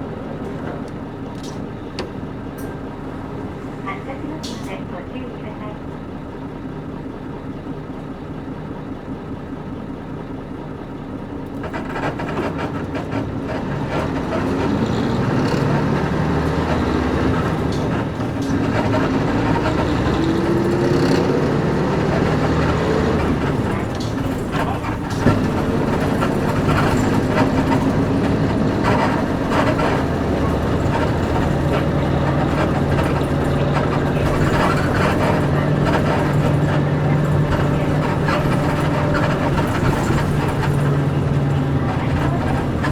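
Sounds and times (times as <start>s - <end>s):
bus body rattling and creaking: 0.0s - 42.9s
bus diesel engine: 0.0s - 42.9s.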